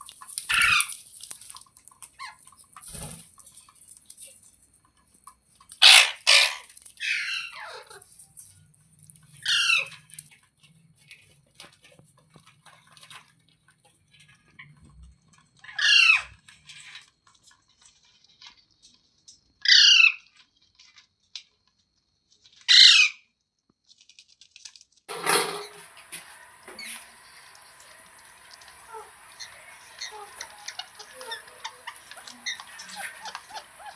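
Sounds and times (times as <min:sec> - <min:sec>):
parrot squawking: 0:00.4 - 0:01.0, 0:05.8 - 0:08.1, 0:09.4 - 0:10.1, 0:15.6 - 0:16.3, 0:19.6 - 0:20.2, 0:22.7 - 0:23.2, 0:25.6 - 0:33.9
steady hiss: 0:25.6 - 0:33.8.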